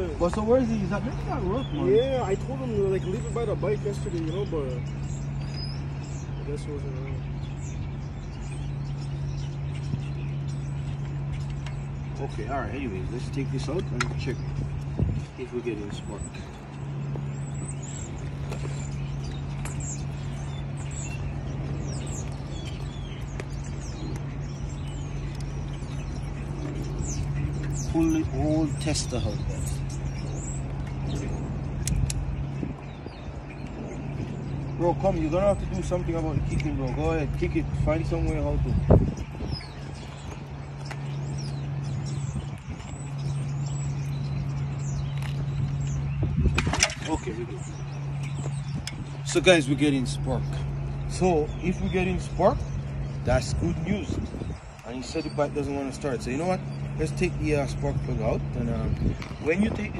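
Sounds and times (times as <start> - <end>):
small birds chirping: 0.0 - 59.9
steady low hum: 0.0 - 59.9.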